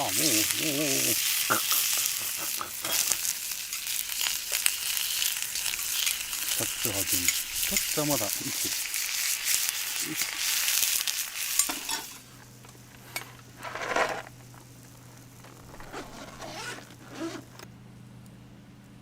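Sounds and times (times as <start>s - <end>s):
meat sizzling in a frying pan: 0.0s - 12.9s
cookware scraping and clinking: 6.9s - 8.6s, 11.5s - 12.3s, 13.0s - 14.4s.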